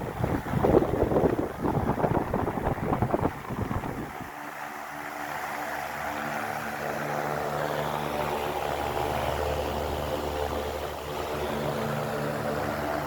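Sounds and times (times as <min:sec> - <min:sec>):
rush of air: 0:00.0 - 0:04.3
airflow buffeting microphone: 0:00.0 - 0:13.0
fan motor hum: 0:00.0 - 0:13.0.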